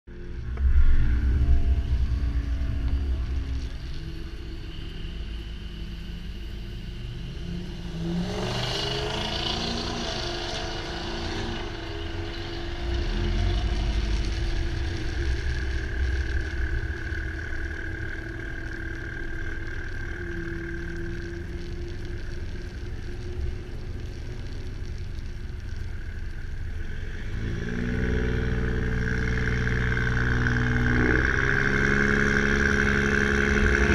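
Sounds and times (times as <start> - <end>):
vehicle engines running: 0.1 - 33.9
engine revving up: 7.4 - 18.9, 26.9 - 33.9.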